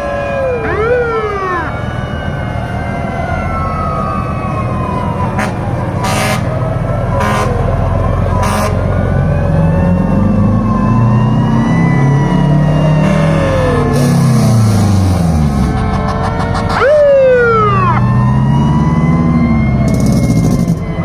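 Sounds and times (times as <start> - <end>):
fire truck sirens wailing: 0.0 - 21.0
short loud horn blasts: 5.4 - 6.5, 7.2 - 7.7, 8.4 - 8.8.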